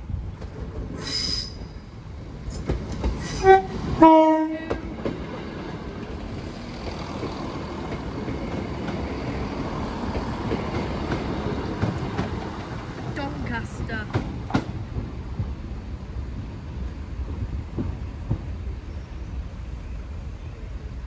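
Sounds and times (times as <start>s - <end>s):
train rumbling: 0.0s - 21.0s
two-tone train horn: 3.4s - 4.8s.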